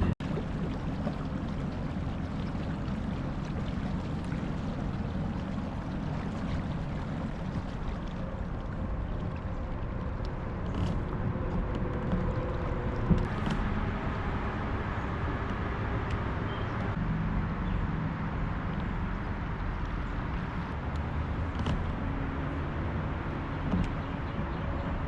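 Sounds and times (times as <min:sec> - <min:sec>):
water rushing: 0:00.0 - 0:17.0, 0:18.1 - 0:25.0
low rumble: 0:00.0 - 0:25.0.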